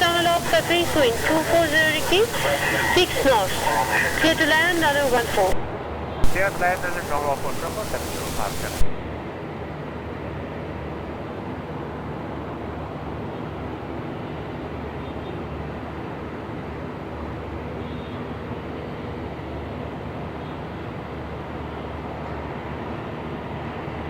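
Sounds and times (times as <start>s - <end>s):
steady rumble and hiss: 0.0s - 9.2s.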